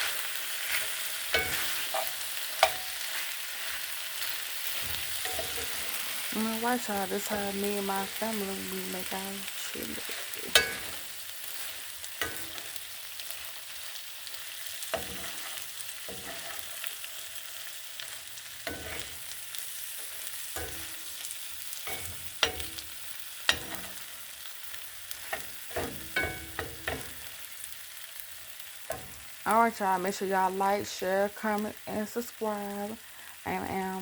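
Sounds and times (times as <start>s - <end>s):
chili sizzling in a pot: 0.0s - 34.0s
spoon clinking against pot: 1.3s - 3.0s, 10.5s - 11.0s, 21.9s - 22.9s, 25.3s - 27.1s.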